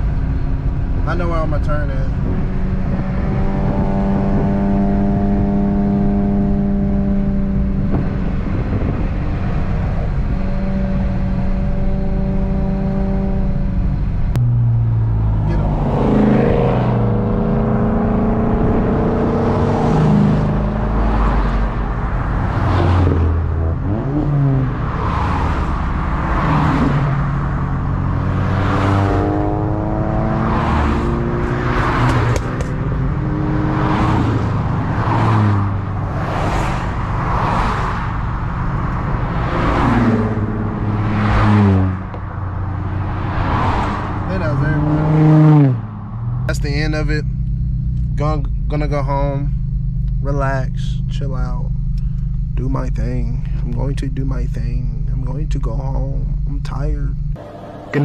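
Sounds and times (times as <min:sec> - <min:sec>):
car engine: 0:00.0 - 0:58.0
road noise: 0:00.0 - 0:58.0.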